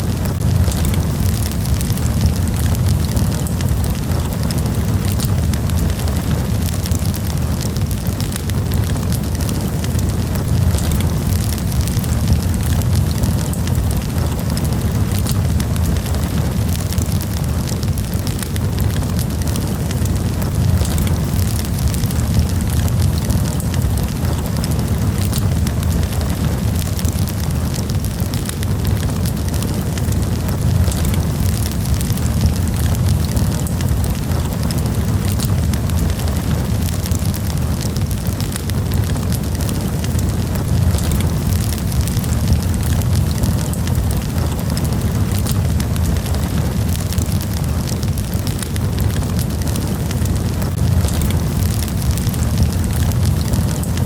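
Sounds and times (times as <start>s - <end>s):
campfire crackling and popping: 0.0s - 54.0s
low rumble: 0.0s - 54.0s.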